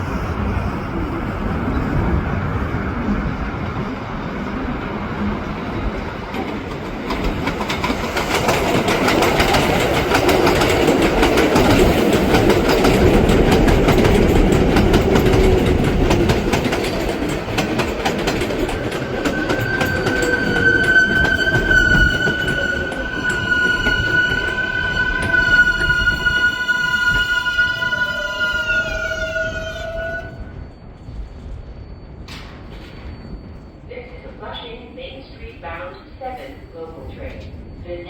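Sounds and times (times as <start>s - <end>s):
train wheels clattering: 5.2s - 30.4s.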